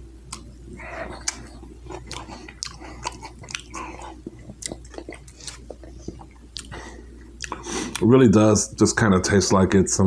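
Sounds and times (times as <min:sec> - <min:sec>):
person chewing: 0:00.2 - 0:08.1.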